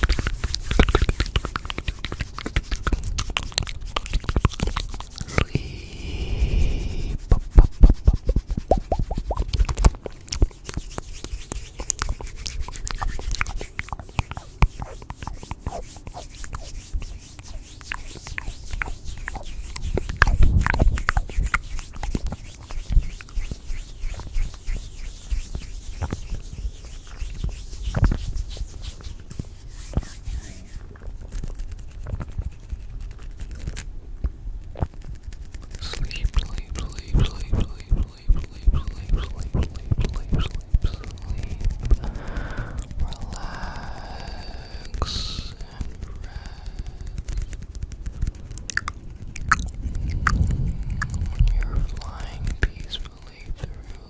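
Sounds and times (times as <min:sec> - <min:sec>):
low rumble: 0:05.2 - 0:07.4, 0:49.2 - 0:52.8
soft clicks and scratches: 0:07.6 - 0:42.0, 0:44.8 - 0:54.0.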